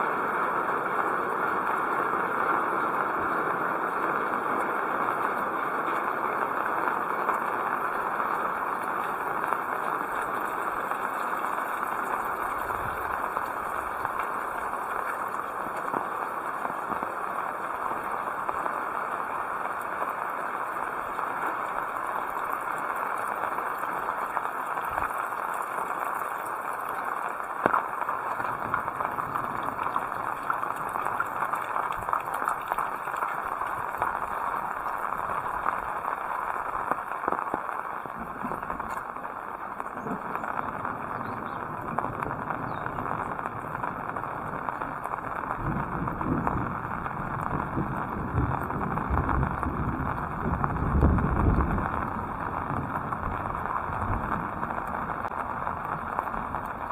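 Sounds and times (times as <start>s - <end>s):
heavy rain falling: 0.0s - 56.9s.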